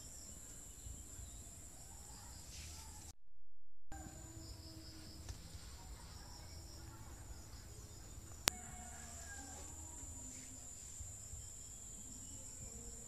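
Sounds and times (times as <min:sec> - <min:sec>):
insects droning: 0:00.0 - 0:03.1, 0:04.0 - 0:13.0.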